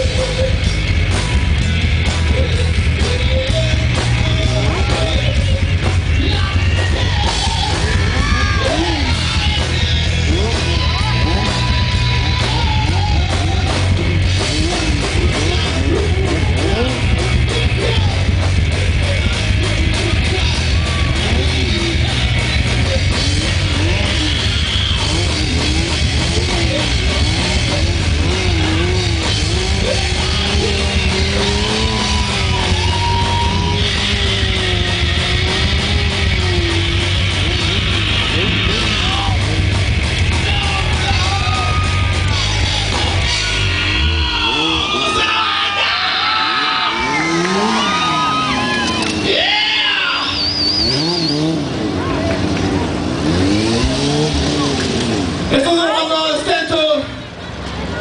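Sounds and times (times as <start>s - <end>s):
rock music with singing: 0.0s - 58.0s.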